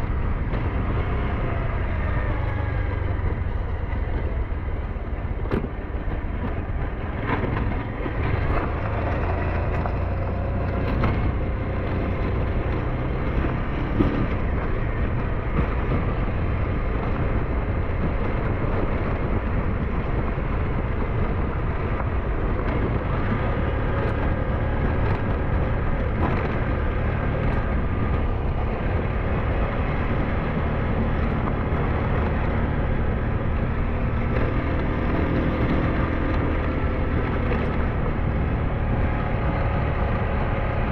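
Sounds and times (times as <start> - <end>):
motorcycle engine running: 0.0 - 40.9
wind rumble on microphone: 0.0 - 40.9.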